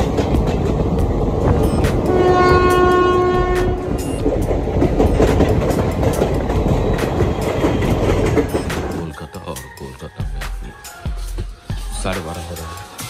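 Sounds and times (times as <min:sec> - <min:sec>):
wheels clicking over rail joints: 0:00.0 - 0:09.0
train rumbling on rails: 0:00.0 - 0:09.2
train horn blast: 0:01.7 - 0:04.3.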